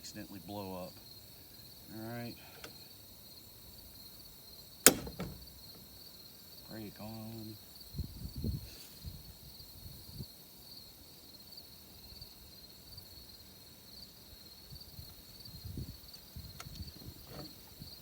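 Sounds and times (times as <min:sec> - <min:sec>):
insects buzzing: 0:00.2 - 0:08.0
handling knocks and bumps: 0:04.9 - 0:05.9.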